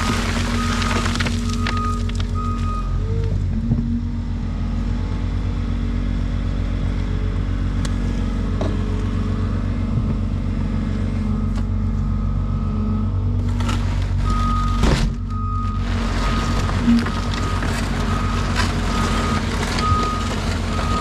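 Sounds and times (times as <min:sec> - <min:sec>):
skid steer loader engine running: 0:00.0 - 0:21.0.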